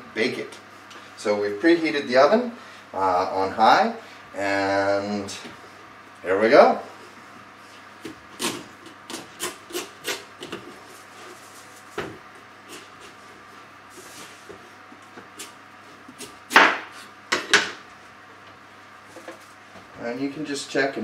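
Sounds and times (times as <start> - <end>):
knife cutting pumpkin rind: 8.0 - 10.7.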